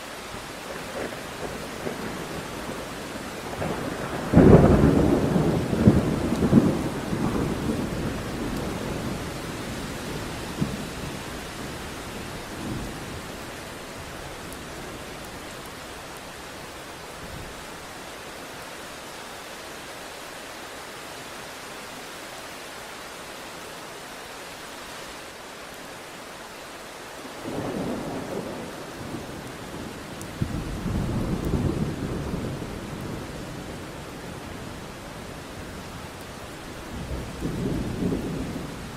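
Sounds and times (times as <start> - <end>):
rain hissing: 0.0 - 38.9
thunder rumbling: 0.7 - 16.0, 27.4 - 35.8.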